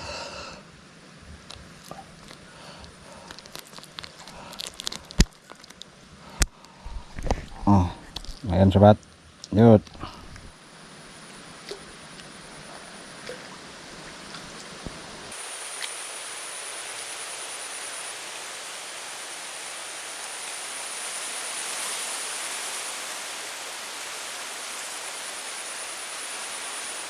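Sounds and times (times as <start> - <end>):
rain falling: 1.1 - 10.6, 13.9 - 27.0.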